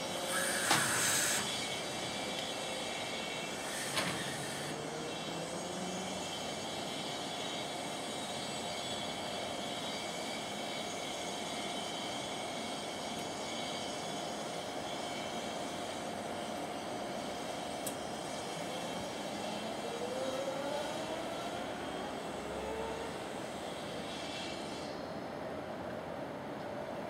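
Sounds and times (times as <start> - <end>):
air brake hiss: 0.3 - 1.5.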